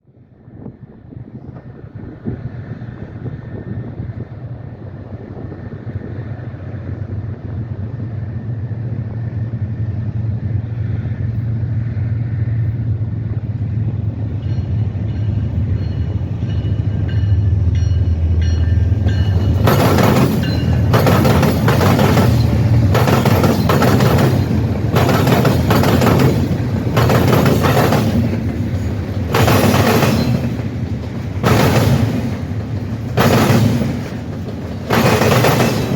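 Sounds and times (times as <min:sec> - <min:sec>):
train rumble: 0:00.0 - 0:35.9
train wheels clattering: 0:14.3 - 0:35.9
wheels banging on crossing: 0:17.9 - 0:35.9.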